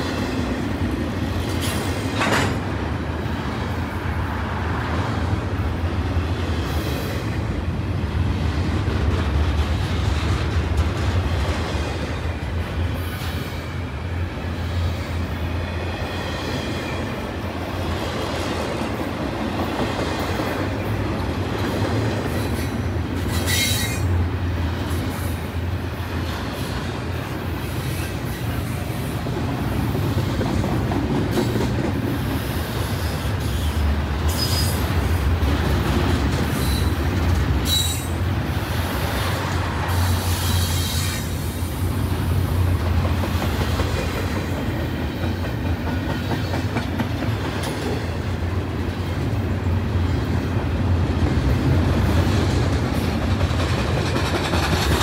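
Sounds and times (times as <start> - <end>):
steel wheels rumbling on rail: 0.0 - 55.0
high wheel squeal: 23.3 - 24.1, 33.4 - 34.8, 37.6 - 38.2.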